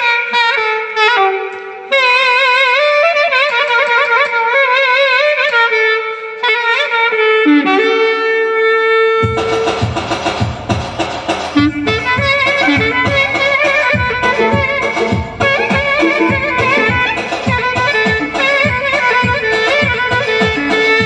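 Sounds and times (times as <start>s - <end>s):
clarinet solo melody: 0.0s - 9.9s, 11.5s - 21.0s
rhythmic backing beat: 1.4s - 6.0s, 9.2s - 21.0s.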